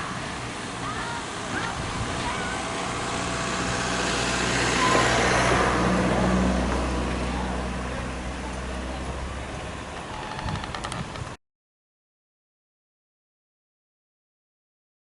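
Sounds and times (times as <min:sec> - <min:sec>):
train passing: 0:00.0 - 0:10.1.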